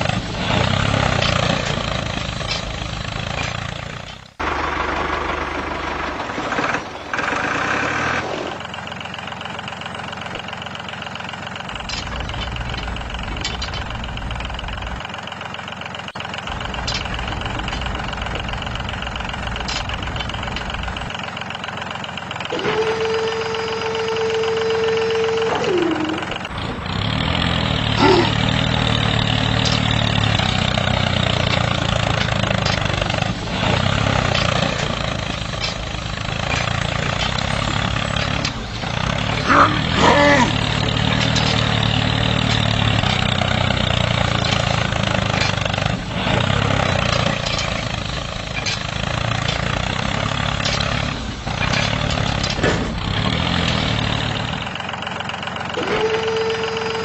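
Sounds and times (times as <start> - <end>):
small tractor engine running: 0.0 - 57.0
steady high whine: 11.6 - 51.6.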